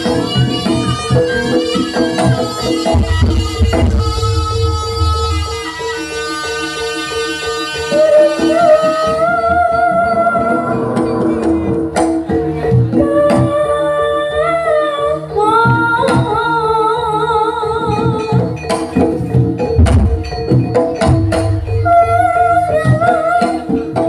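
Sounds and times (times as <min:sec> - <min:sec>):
steady drum beat: 0:00.0 - 0:05.4, 0:18.4 - 0:24.0
person singing wavering melody: 0:07.9 - 0:12.0, 0:12.6 - 0:18.6, 0:21.2 - 0:24.0.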